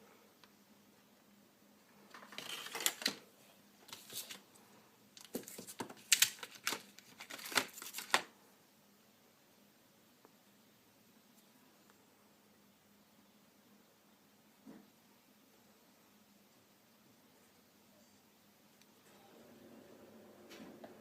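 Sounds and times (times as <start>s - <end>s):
packaging crinkling and tearing: 2.1s - 3.2s, 3.9s - 4.4s, 5.2s - 8.3s.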